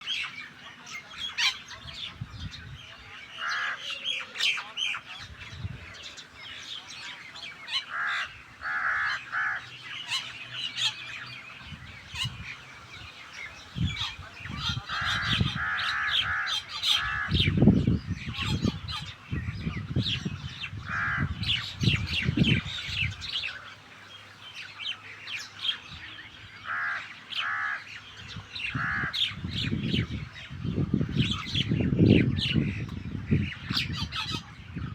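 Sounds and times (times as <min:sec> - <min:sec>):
birds chattering and chirping: 0:00.0 - 0:34.9.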